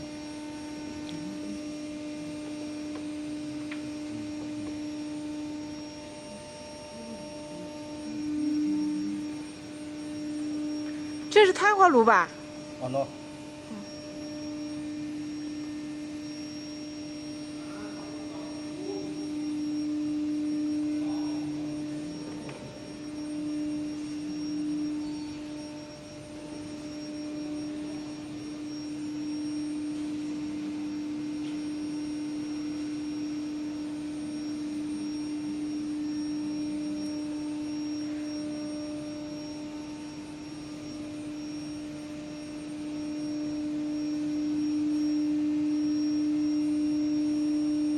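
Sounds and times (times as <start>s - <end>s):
machine hum: 0.0s - 47.9s.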